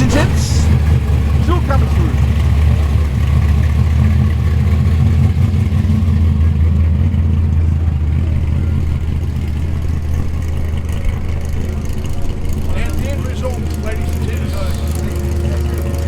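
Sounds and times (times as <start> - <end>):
car engine at low revs: 0.0 - 16.0.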